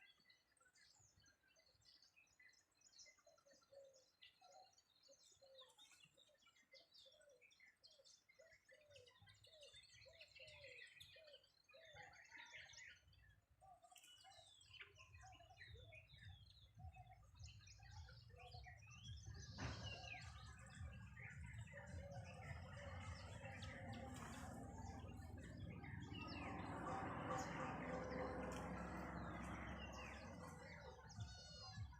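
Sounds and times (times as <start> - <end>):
birds chirping and calling: 14.8 - 31.9
faint low rumble: 19.1 - 31.9
low repeated notes: 19.6 - 31.9.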